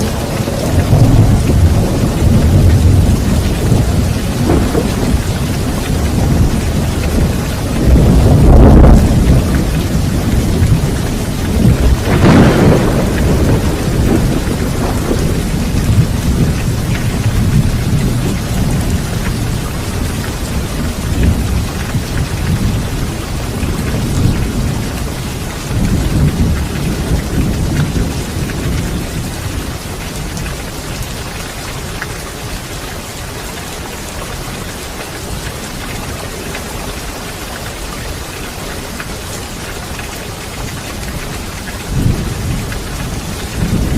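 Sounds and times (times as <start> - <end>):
thunder rumbling: 0.0 - 31.2, 40.4 - 43.9
heavy rain: 0.0 - 43.9.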